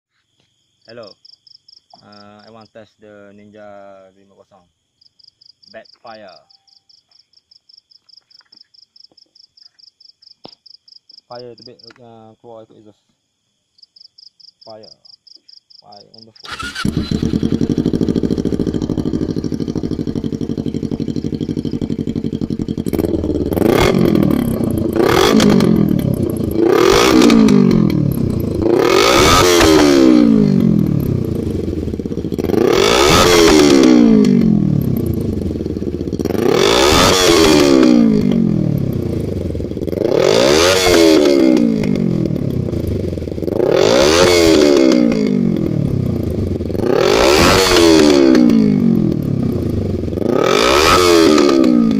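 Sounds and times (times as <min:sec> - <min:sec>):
motorcycle engine idling and revving: 0:16.1 - 0:51.9.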